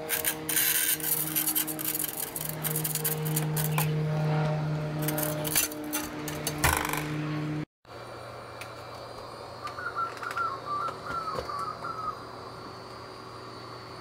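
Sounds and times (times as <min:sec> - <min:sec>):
steady low hum: 0:00.0 - 0:14.0
bird calling short notes: 0:09.7 - 0:12.2.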